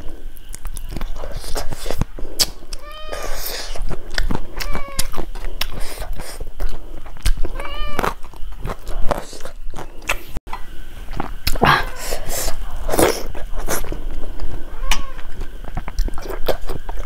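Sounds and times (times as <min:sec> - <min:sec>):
sharp mouth clicks: 0:00.4 - 0:02.8
wet chewing and lip-smacking: 0:00.4 - 0:10.3, 0:12.8 - 0:17.0.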